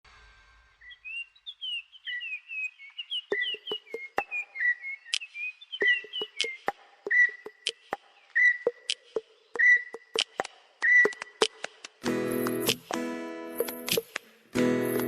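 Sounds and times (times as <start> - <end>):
bird-like whistled chirps: 0.7 - 10.2, 10.8 - 11.4
sharp clicks: 6.2 - 6.8, 7.5 - 8.0, 10.0 - 12.8.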